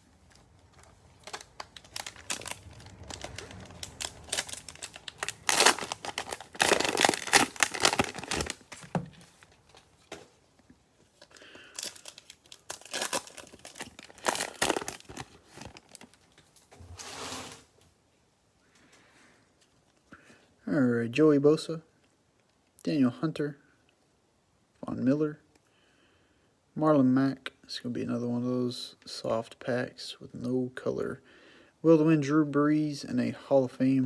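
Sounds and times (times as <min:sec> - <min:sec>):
cellophane wrapper crinkling and tearing: 0:00.0 - 0:09.6, 0:11.2 - 0:16.4.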